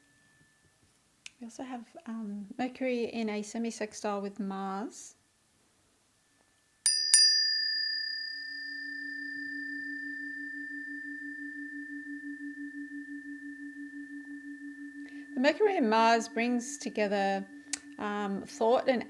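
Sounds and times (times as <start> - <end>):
tuning forks struck and ringing: 6.8 - 19.0
low pulsing hum: 9.9 - 19.0.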